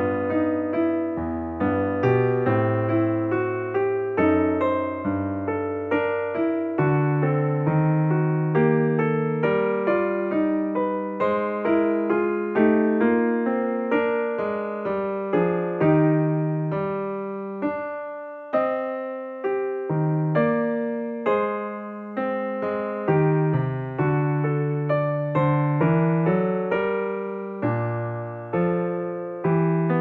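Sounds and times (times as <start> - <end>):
electric piano melody: 0.0 - 30.0.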